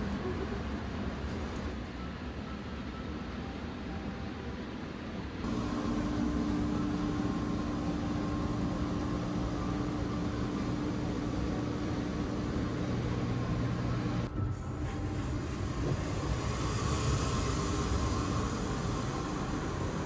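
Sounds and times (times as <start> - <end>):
train machinery and ventilation hum: 0.0 - 20.0
faint held tone: 5.4 - 15.7.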